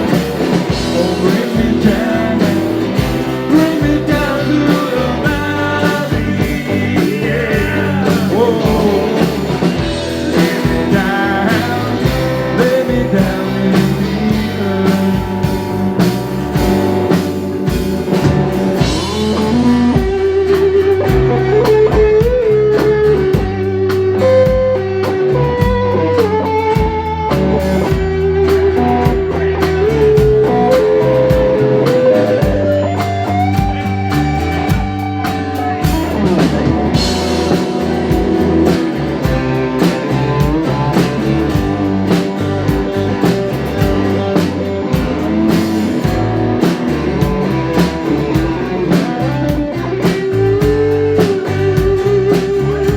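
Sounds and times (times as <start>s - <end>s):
bass guitar: 0.0s - 52.9s
blues-rock band playing: 0.0s - 52.9s
drum kit: 0.0s - 52.9s
electric guitar solo: 18.7s - 52.9s.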